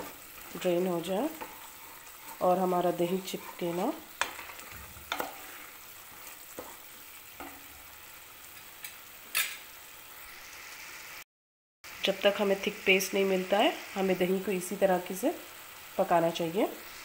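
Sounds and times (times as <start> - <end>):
wooden spoon stirring: 0.0 - 7.7
sauce sizzling and bubbling in oil: 0.0 - 11.2, 11.8 - 17.0.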